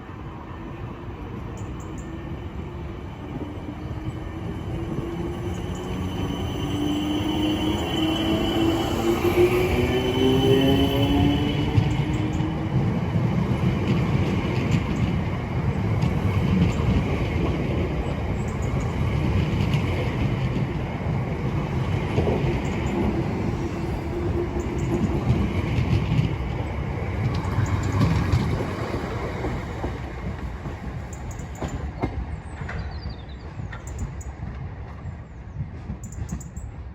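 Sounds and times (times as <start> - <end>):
electric train rumbling on rails: 0.0 - 36.9.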